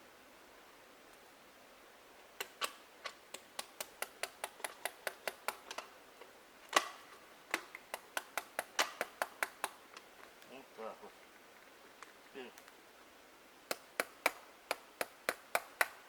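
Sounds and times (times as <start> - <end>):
hammer tapping a nail: 13.7 - 16.0.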